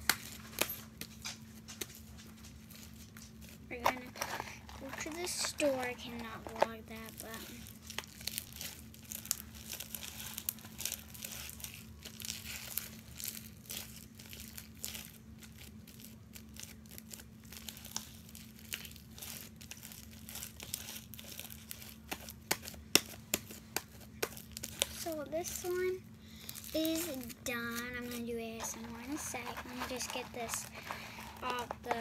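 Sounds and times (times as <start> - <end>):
faint steady hum: 0.0 - 32.0
slime crackling and popping: 0.0 - 32.0.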